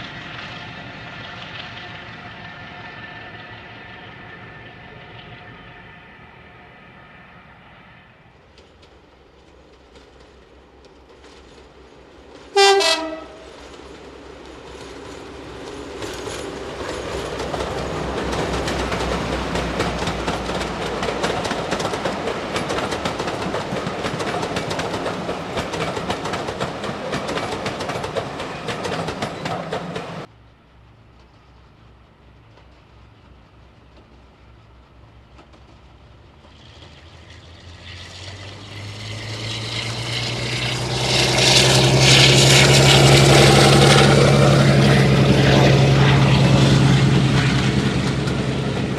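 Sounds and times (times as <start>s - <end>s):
diesel train engine running: 0.0s - 48.9s
train wheels clicking over rail joints: 8.4s - 12.5s, 13.5s - 48.9s
locomotive horn blast: 12.5s - 13.5s.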